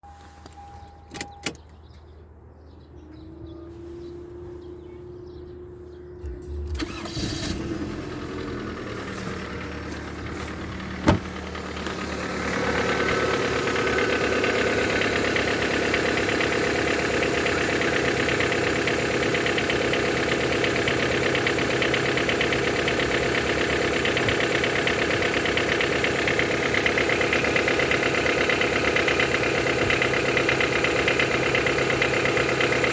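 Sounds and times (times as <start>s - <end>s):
car engine idling with knock: 6.2s - 32.9s
starter motor cranking: 6.2s - 32.9s.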